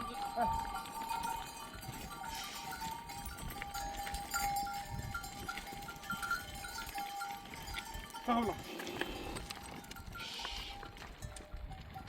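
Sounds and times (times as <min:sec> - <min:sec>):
animal neck bells clinking: 0:00.0 - 0:12.0.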